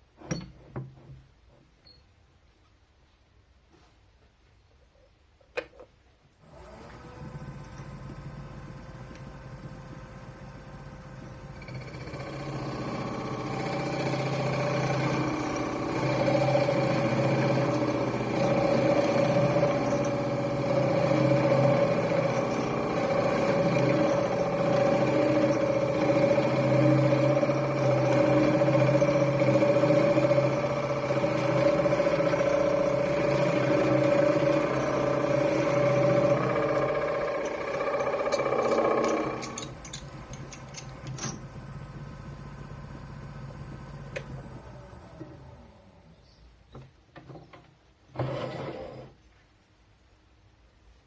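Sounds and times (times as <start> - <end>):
wood lathe motor humming: 6.5 - 45.8.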